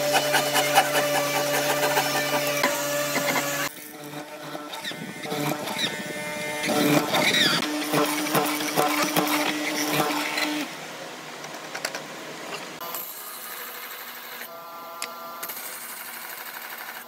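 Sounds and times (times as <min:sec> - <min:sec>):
electric power tool motor hum: 0:00.0 - 0:10.7.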